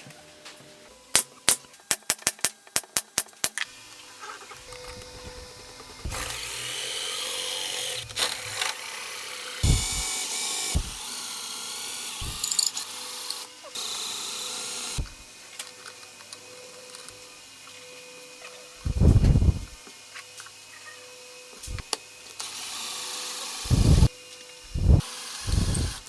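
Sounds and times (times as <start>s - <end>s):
power tool cutting wood: 3.7s - 26.0s
thumps: 9.6s - 10.0s, 12.2s - 12.6s.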